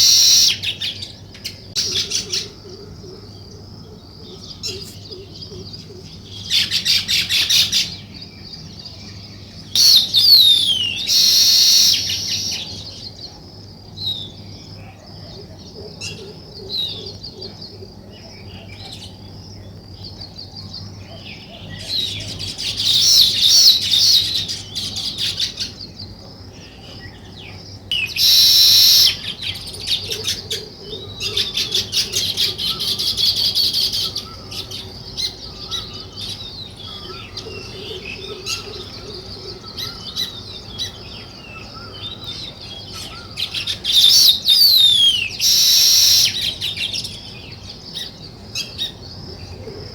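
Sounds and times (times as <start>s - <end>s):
sparrows chirping: 0.0s - 49.9s.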